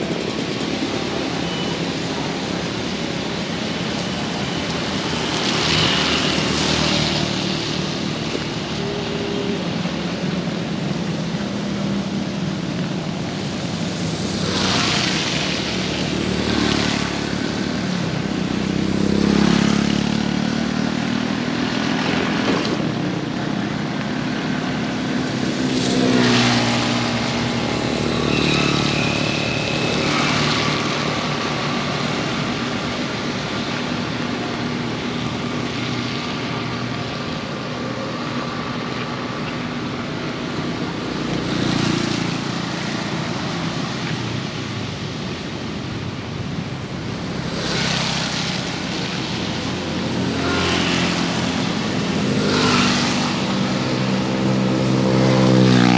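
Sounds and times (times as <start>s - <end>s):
heavy rain: 0.0s - 19.9s, 20.6s - 55.9s
vehicles passing on wet road: 0.0s - 55.9s.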